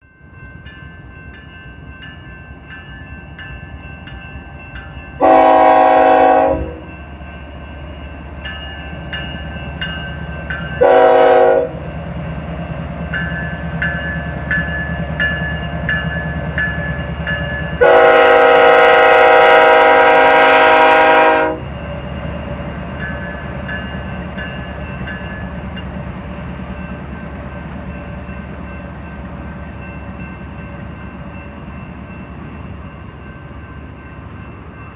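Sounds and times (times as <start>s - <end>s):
diesel locomotive engine rumble: 0.1s - 34.9s
locomotive horn blasts: 5.2s - 6.9s, 10.8s - 11.8s, 17.8s - 21.7s.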